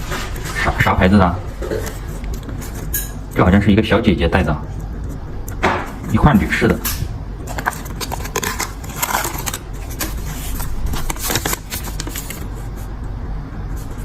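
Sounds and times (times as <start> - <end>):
packaging rustling and clicking: 7.4 - 12.5.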